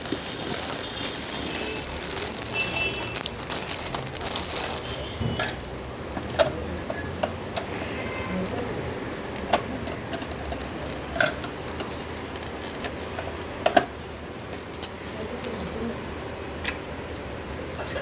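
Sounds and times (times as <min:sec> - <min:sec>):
plastic packaging crinkling: 0:00.0 - 0:07.6, 0:09.3 - 0:14.8.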